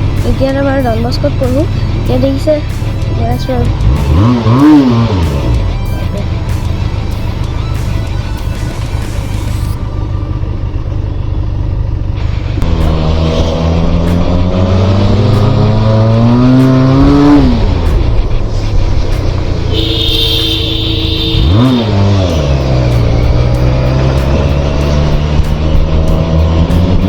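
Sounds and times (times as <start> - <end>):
motorcycle engine accelerating: 0.0 - 27.0
steady higher tone: 18.2 - 23.6.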